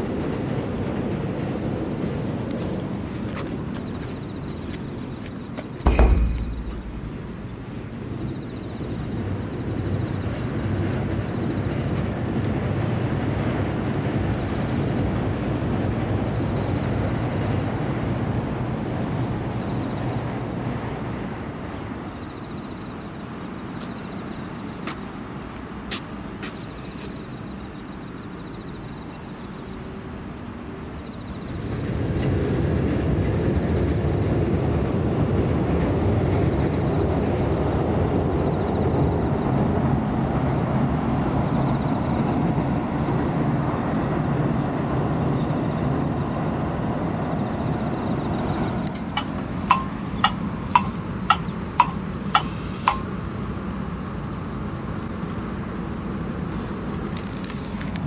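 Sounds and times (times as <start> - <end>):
train rumbling over steel bridge: 0.0 - 57.0
sharp clicks: 48.9 - 53.1.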